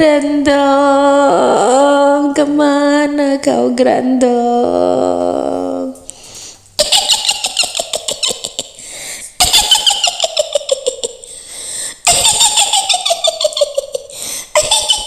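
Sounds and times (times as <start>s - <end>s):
high-pitched witch cackle: 6.8s - 8.8s, 9.4s - 11.3s, 12.0s - 15.0s.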